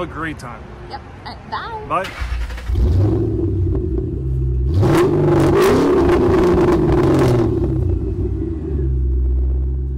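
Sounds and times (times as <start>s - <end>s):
car engine revving: 2.0s - 9.9s.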